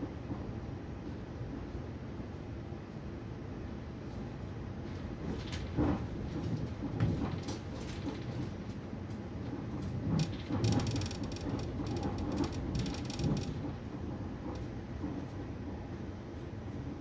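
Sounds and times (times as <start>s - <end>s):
train low rumble: 0.0s - 17.0s
wheels knocking on track: 9.7s - 15.2s.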